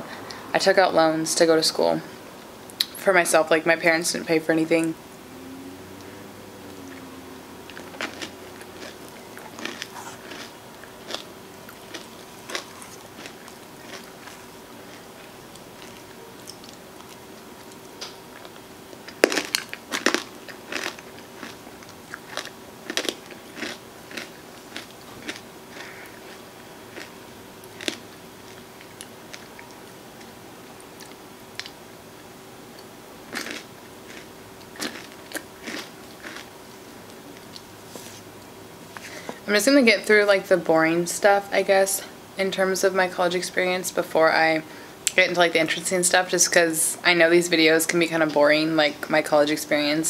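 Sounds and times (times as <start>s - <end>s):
faint steady hum: 0.0s - 50.0s
crunchy ice cream chewing: 7.7s - 30.3s, 33.3s - 36.5s.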